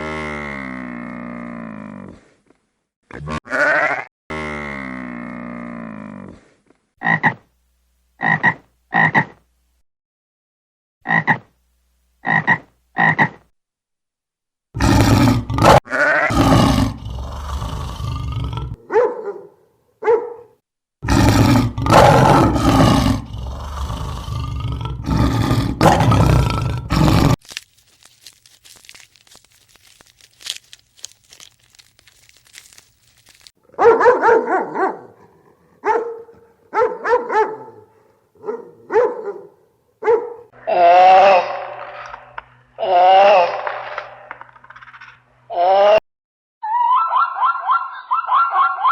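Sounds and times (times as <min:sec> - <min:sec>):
animal calls: 0:46.6 - 0:48.9.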